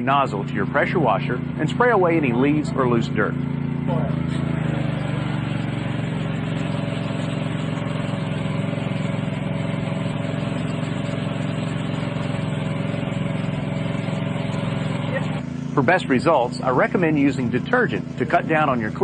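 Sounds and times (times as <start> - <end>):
pressure washer engine droning: 0.0 - 19.0
water spraying: 3.9 - 19.0.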